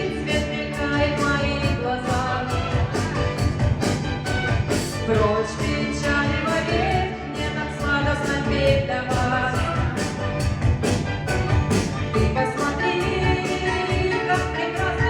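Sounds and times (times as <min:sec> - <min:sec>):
woman singing: 0:00.0 - 0:03.6, 0:05.0 - 0:10.2, 0:12.2 - 0:15.0
instrumental backing with steady beat: 0:00.0 - 0:15.0.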